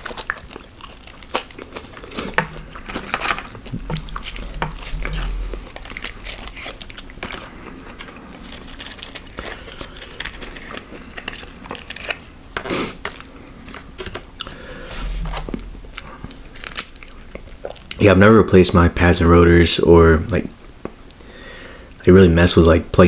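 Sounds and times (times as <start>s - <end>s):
chewing and crunching food: 0.0s - 18.0s.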